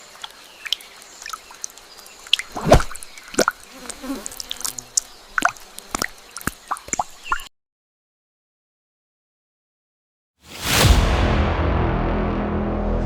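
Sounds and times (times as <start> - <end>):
water dripping and plopping: 0.0 - 3.6, 5.4 - 7.5.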